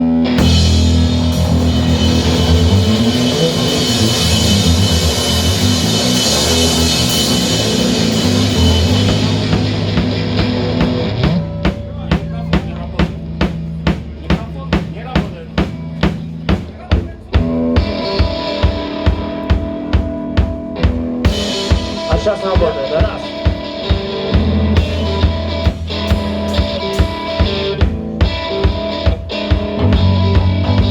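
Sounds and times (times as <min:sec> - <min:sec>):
drum kit beat: 0:00.0 - 0:30.9
rock band playing: 0:00.0 - 0:30.9.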